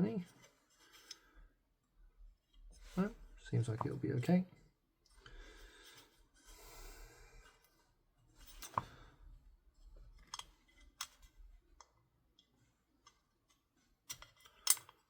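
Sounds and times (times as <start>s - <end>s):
airsoft rifle parts clicking: 10.2s - 15.0s.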